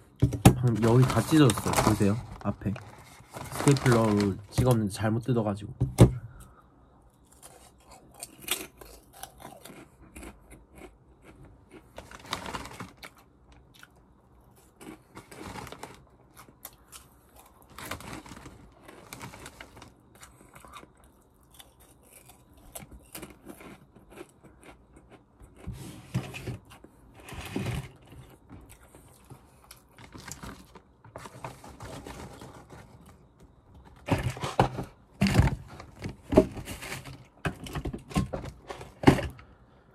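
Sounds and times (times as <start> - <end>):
chewing crunchy potato snack: 7.2 - 27.1, 27.9 - 30.8.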